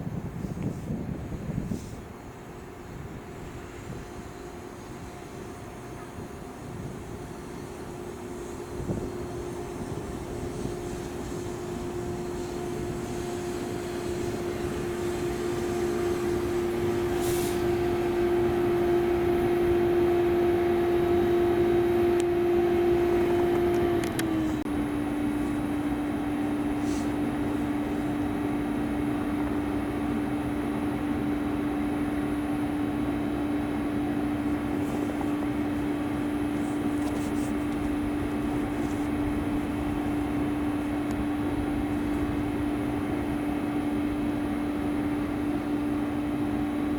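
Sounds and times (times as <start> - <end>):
train rolling noise: 0.0 - 46.9
train whine: 0.0 - 46.9.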